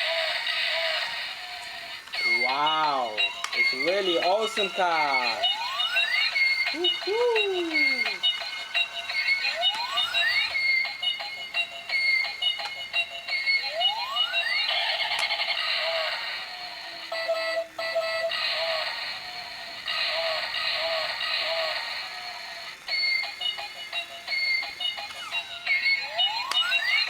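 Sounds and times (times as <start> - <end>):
rising siren-like whoop: 6.7 - 8.2.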